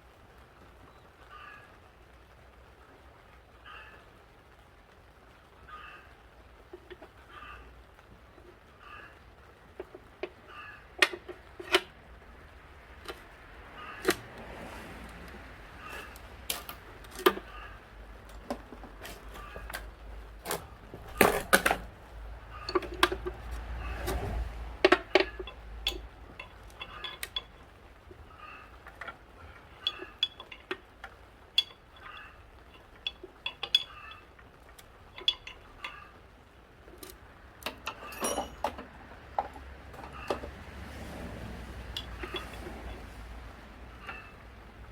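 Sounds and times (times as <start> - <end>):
metal tools clinking: 15.2 - 36.2, 36.9 - 44.5.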